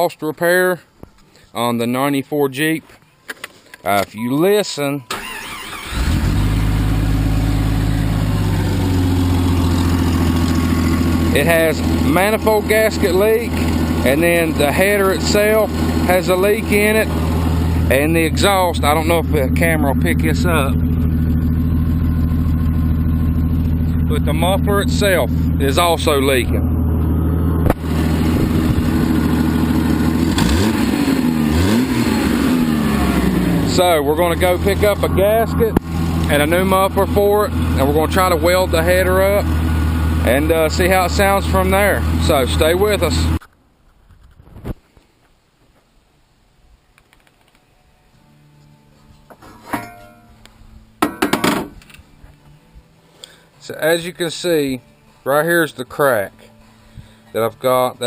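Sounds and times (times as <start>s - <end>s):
engine idling loudly: 6.0s - 43.4s.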